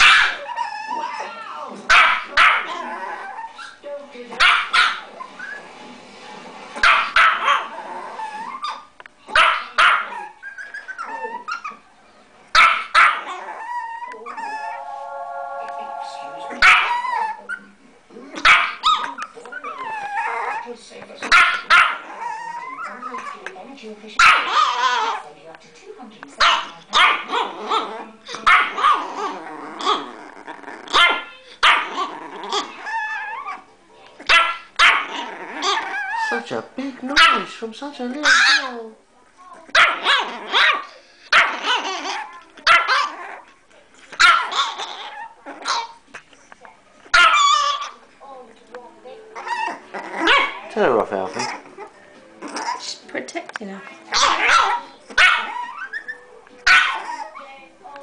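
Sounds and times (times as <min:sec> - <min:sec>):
small dog barking: 0:00.0 - 0:00.5, 0:01.9 - 0:02.8, 0:04.4 - 0:05.0, 0:06.8 - 0:07.7, 0:08.6 - 0:10.3, 0:12.6 - 0:13.4, 0:18.4 - 0:19.1, 0:21.2 - 0:22.2, 0:24.2 - 0:25.2, 0:26.4 - 0:29.2, 0:30.9 - 0:32.0, 0:34.3 - 0:35.2, 0:37.2 - 0:37.5, 0:39.7 - 0:43.2, 0:44.2 - 0:44.8, 0:47.1 - 0:48.0, 0:54.1 - 0:56.0, 0:56.6 - 0:57.3
dog whining: 0:00.2 - 0:01.7, 0:02.7 - 0:03.8, 0:07.5 - 0:08.9, 0:10.1 - 0:11.8, 0:13.0 - 0:15.1, 0:16.5 - 0:17.7, 0:18.7 - 0:20.7, 0:21.5 - 0:23.4, 0:28.7 - 0:33.7, 0:34.8 - 0:36.6, 0:39.8 - 0:43.6, 0:44.2 - 0:46.0, 0:47.1 - 0:48.0, 0:49.4 - 0:53.0, 0:54.1 - 0:57.5.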